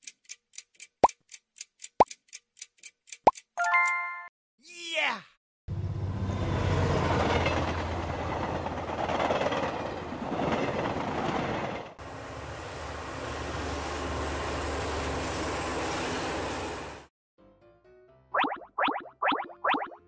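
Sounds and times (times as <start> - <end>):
high-speed train rushing past: 5.7 - 17.1.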